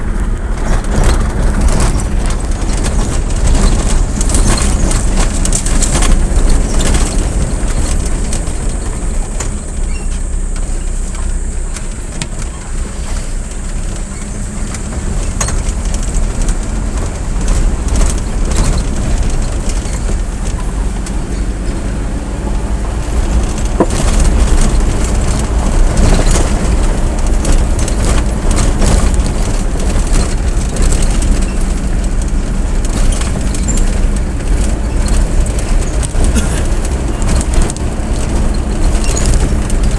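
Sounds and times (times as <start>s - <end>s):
low engine hum: 0.0s - 39.9s
road and wind noise: 0.0s - 39.9s
clicks and knocks: 23.1s - 39.9s.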